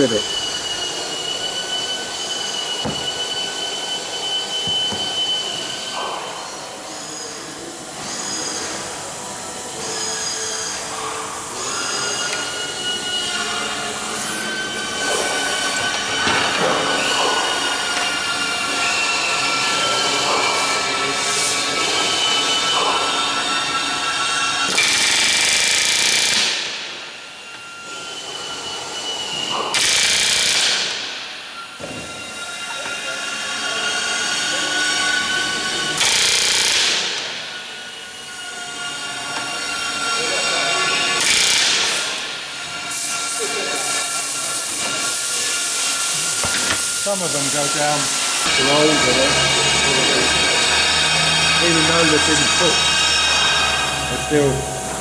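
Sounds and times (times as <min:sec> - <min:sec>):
power tool whining: 0:00.0 - 0:55.0
pneumatic rivet gun hammering: 0:02.2 - 0:06.2, 0:24.7 - 0:26.9, 0:29.5 - 0:31.2, 0:36.0 - 0:37.4, 0:41.2 - 0:42.3, 0:43.8 - 0:52.5
sharp knocks: 0:02.8 - 0:03.4, 0:04.6 - 0:05.4.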